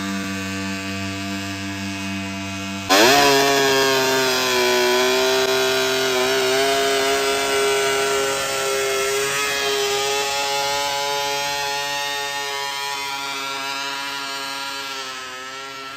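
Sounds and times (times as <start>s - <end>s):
high-pitched engine revving: 0.0s - 15.9s
tractor engine running: 2.9s - 10.3s.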